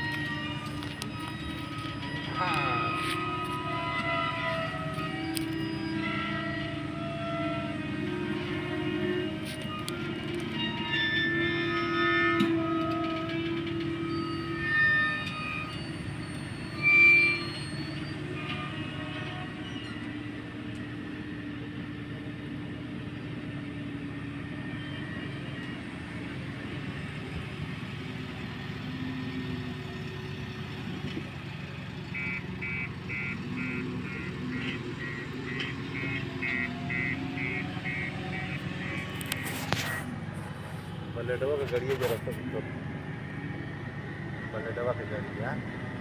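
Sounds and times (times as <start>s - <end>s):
vehicle engine running: 29.5s - 46.0s
horn toots: 32.1s - 40.1s.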